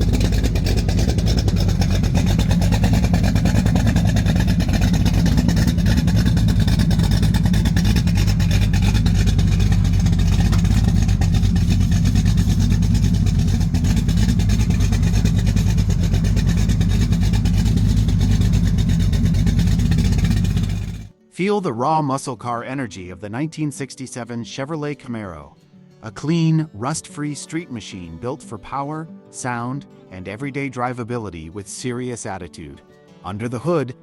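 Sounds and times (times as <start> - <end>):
car engine idling: 0.0 - 21.1.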